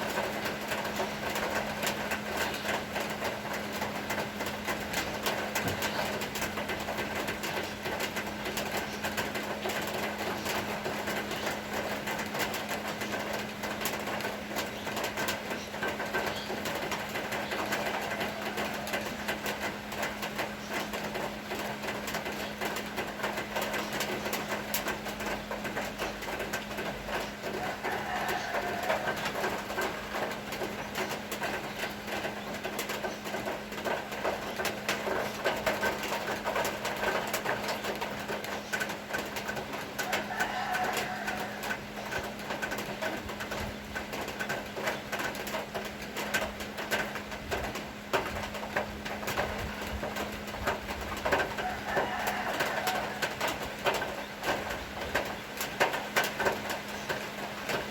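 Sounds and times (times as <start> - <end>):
raindrops hitting surfaces: 0.0 - 57.9.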